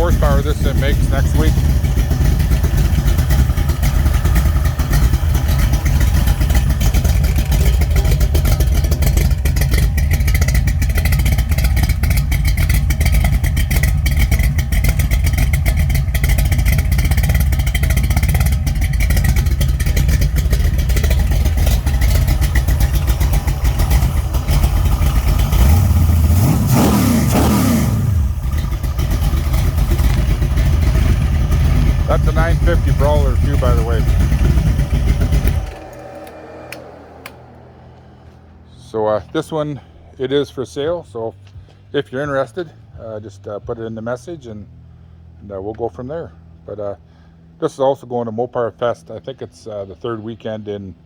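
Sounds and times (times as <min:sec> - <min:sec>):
noisy rocker arms ticking: 0:00.0 - 0:26.5, 0:28.4 - 0:37.4
engine revving: 0:00.0 - 0:40.8
engine running steadily: 0:00.0 - 0:51.0.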